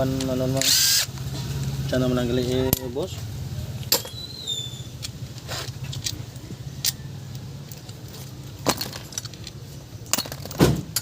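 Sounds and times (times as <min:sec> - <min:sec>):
metal tools clinking: 0:02.4 - 0:11.0.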